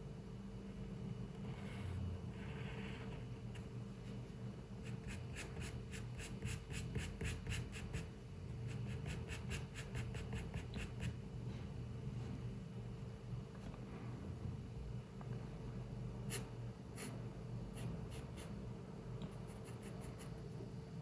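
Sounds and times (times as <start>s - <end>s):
low room hum: 0.0s - 21.0s
pencil scratching on paper: 1.5s - 3.7s, 4.8s - 8.1s, 8.7s - 11.2s, 19.3s - 20.4s.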